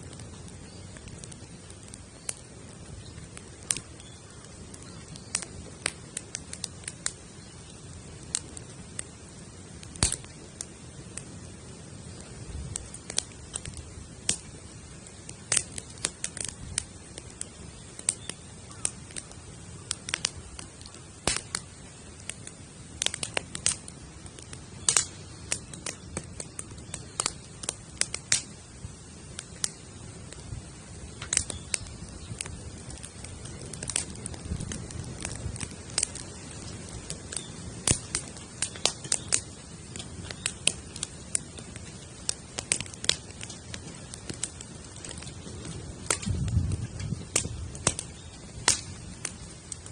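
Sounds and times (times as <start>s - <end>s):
campfire snaps and pops: 0.0s - 49.9s
low sound of burning: 0.0s - 49.9s.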